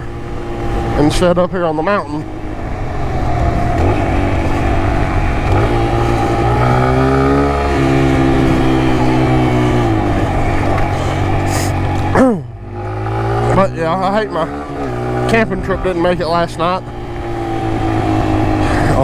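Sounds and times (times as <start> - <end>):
motorbike engine revving: 0.0 - 19.0.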